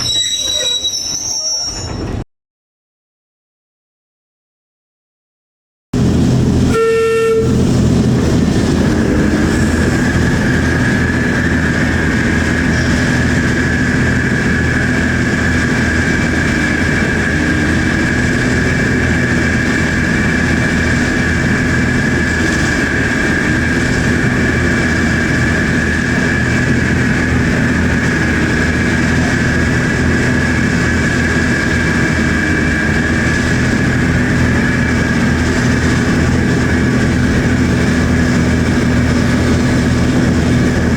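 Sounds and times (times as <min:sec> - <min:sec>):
diesel locomotive engine hum: 0:06.0 - 0:40.9
high whine: 0:06.0 - 0:40.9
locomotive horn note: 0:06.6 - 0:07.9.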